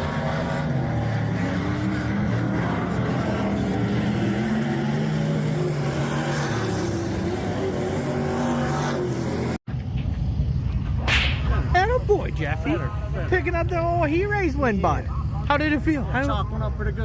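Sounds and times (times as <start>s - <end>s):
race car engines droning: 0.0s - 17.0s
low steady engine rumble: 9.3s - 17.0s.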